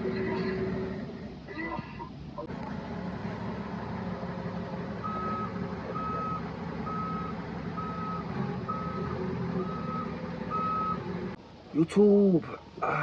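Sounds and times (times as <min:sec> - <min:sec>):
truck engine humming: 0:00.0 - 0:13.0
reversing alarm beeping: 0:05.0 - 0:11.0.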